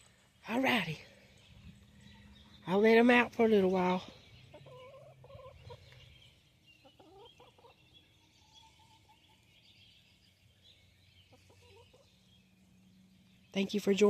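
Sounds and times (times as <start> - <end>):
poultry calling: 4.2 - 9.4, 11.2 - 12.2.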